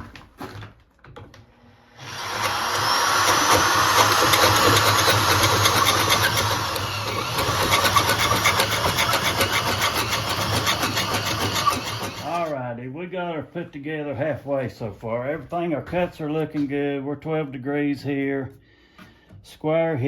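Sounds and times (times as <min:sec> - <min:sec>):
power drill boring into wood: 0:01.8 - 0:12.5.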